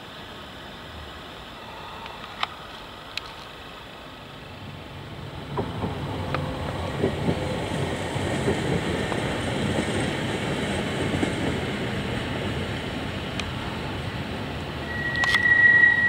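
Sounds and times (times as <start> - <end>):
train wheels rumbling on rails: 4.6 - 16.0
clickety-clack of rails: 5.1 - 16.0.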